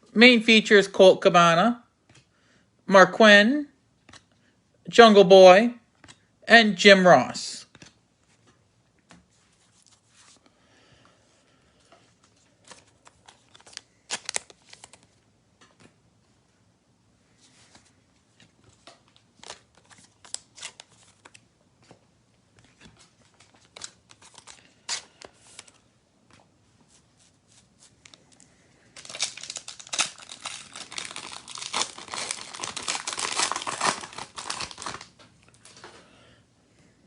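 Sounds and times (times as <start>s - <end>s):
card pack wrapper tearing and crinkling: 12.6s - 15.1s, 19.4s - 21.4s, 23.3s - 25.8s, 28.9s - 35.2s
cards and packaging clicking: 12.6s - 15.9s, 18.7s - 22.0s, 22.6s - 26.4s, 29.0s - 35.9s.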